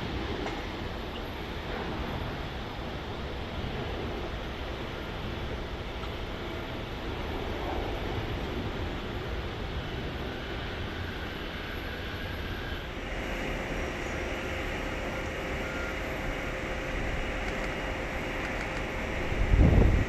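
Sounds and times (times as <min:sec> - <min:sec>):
jet aircraft engine rushing: 0:00.0 - 0:20.0
faint held tone: 0:11.7 - 0:17.4.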